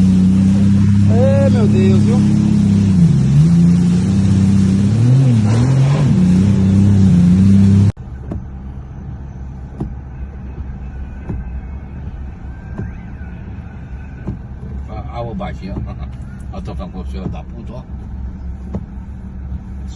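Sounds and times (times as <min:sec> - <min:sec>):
engine running loudly: 0:00.0 - 0:07.9.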